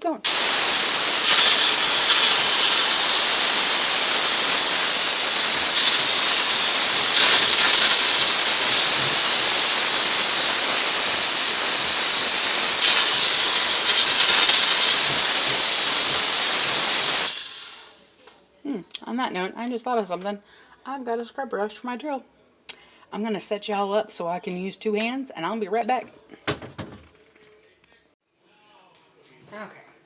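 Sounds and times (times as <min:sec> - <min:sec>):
steam cleaner hissing: 0:00.0 - 0:18.2.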